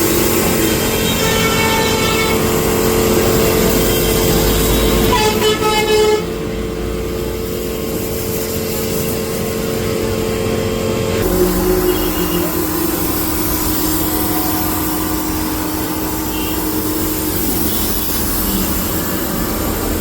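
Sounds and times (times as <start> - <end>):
spray gun hissing: 7.2 - 9.9, 11.2 - 20.0
motor hum: 11.0 - 20.0.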